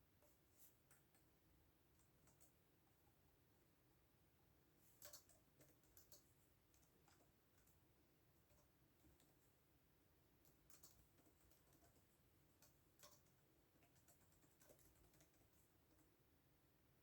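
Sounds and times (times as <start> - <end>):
computer keyboard keystrokes: 5.0 - 7.8, 10.4 - 16.1.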